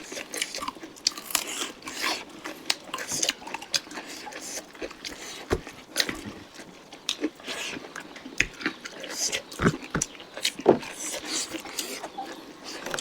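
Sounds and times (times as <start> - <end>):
chewing mouth clicks and smacks: 0.0 - 13.0.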